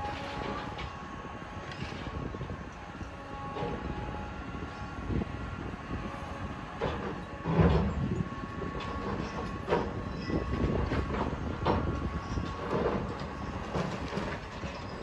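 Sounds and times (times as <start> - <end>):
faint machine whine: 0.0 - 15.0
machine drone: 0.0 - 15.0
rubble and metal crunching: 6.4 - 15.0.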